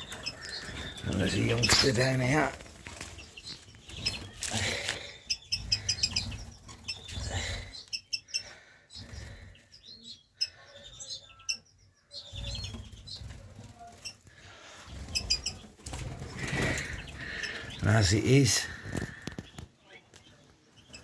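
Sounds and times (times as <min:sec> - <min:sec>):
wings fluttering: 0:00.0 - 0:07.7, 0:12.3 - 0:20.2
finches chirping: 0:00.0 - 0:21.0.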